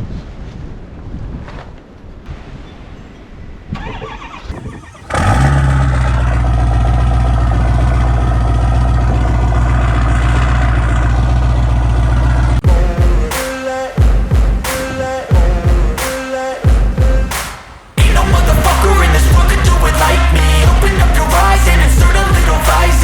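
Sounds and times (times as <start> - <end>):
diesel engine idling: 5.0 - 12.6, 18.0 - 23.0.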